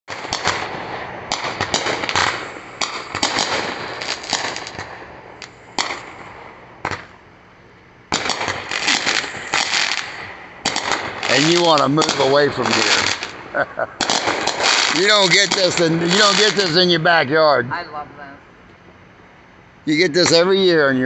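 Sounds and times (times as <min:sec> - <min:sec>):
fireworks cracking and banging: 0:00.1 - 0:07.2, 0:08.1 - 0:17.3.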